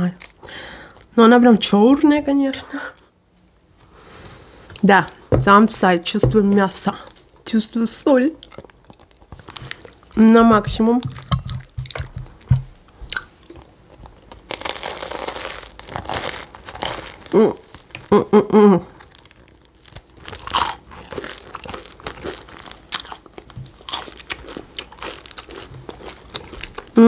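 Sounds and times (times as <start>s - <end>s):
crunching of pastry being chewed: 8.3s - 10.2s, 11.2s - 18.1s, 18.9s - 27.0s
person humming: 17.3s - 18.9s.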